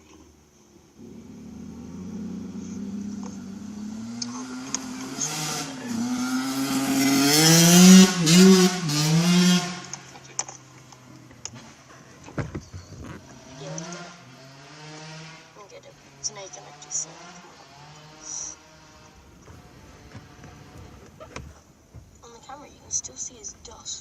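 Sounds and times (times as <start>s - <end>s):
dirt bike revving hard: 1.0s - 10.0s, 13.3s - 21.0s.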